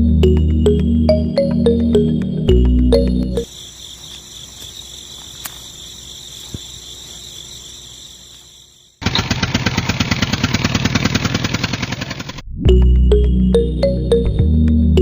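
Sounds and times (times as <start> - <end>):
insect chirping: 2.2 - 9.0
small engine chugging: 9.0 - 12.4.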